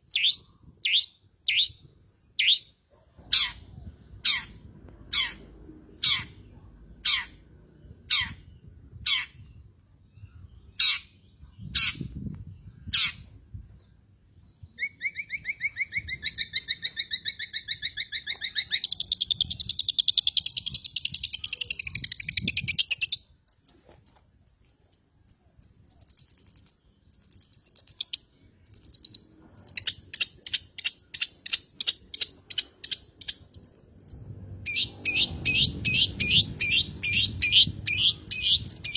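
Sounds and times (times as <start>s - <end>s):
fast high bird twittering: 14.8s - 23.8s, 25.3s - 38.9s.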